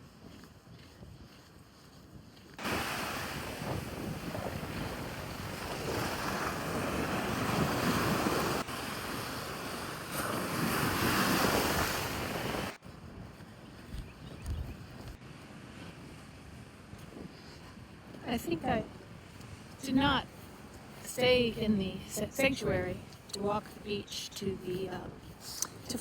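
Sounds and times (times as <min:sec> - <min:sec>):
wind buffeting microphone: 0:00.0 - 0:26.0
surf breaking on a beach: 0:02.6 - 0:12.8.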